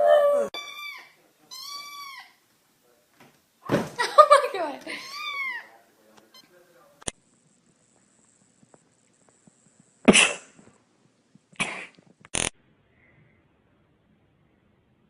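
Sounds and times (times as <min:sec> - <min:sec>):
pet sneezing: 0:10.1 - 0:10.6.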